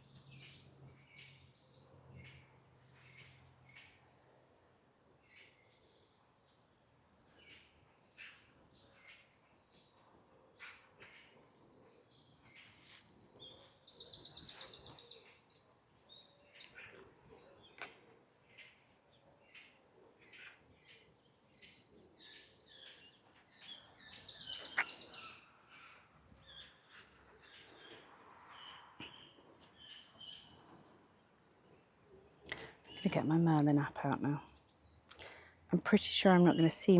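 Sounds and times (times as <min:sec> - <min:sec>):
small birds chirping: 0:00.0 - 0:04.2, 0:04.8 - 0:36.9
songbird trilling: 0:21.6 - 0:25.5.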